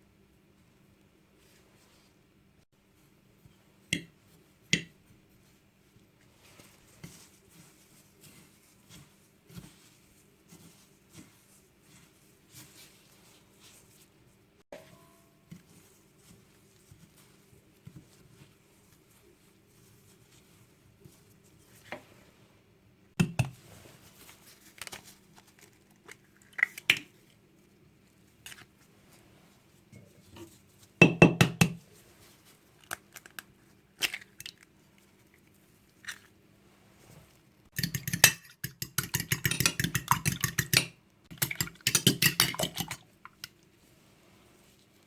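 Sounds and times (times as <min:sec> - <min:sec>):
utensil whisking in a bowl: 0:03.0 - 0:21.8, 0:37.0 - 0:45.0
dishes and utensils clinking: 0:14.7 - 0:15.6.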